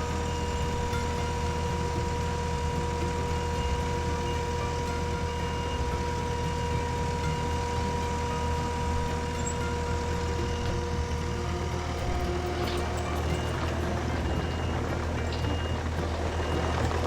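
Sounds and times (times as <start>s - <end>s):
skid steer engine running: 0.0s - 17.0s.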